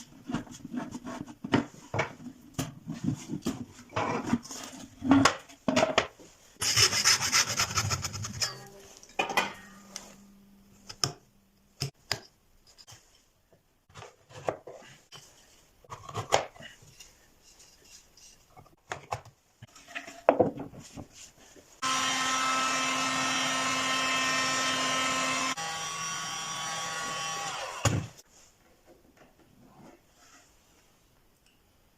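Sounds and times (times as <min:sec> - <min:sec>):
saw strokes: 0:06.6 - 0:08.6.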